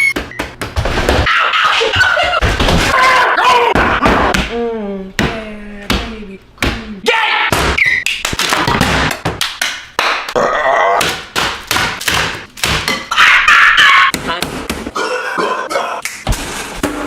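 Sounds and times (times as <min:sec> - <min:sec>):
loud vocal cry: 0:02.9 - 0:04.3.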